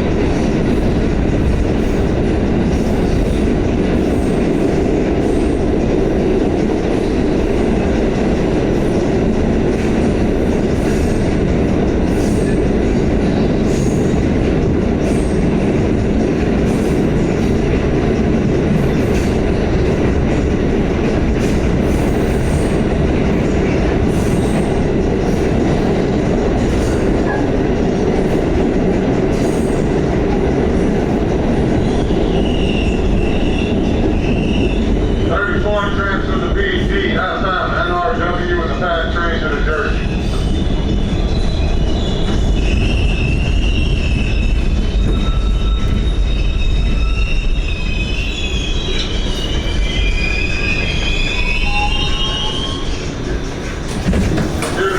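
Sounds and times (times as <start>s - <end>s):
steel wheels rumbling on rail: 0.0s - 54.9s
high-pitched wheel squeal: 40.2s - 53.2s.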